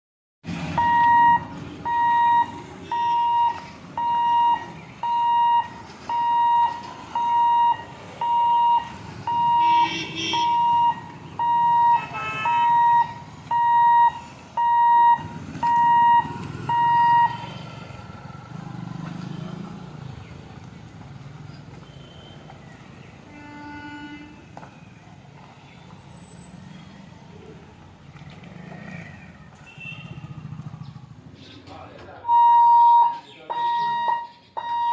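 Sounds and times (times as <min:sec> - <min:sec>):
idling road traffic: 0:00.5 - 0:34.9
electronic warning beeps: 0:00.8 - 0:17.4, 0:32.2 - 0:34.9
vehicle horn: 0:09.5 - 0:10.7, 0:11.8 - 0:13.0, 0:23.2 - 0:24.5, 0:29.6 - 0:30.3.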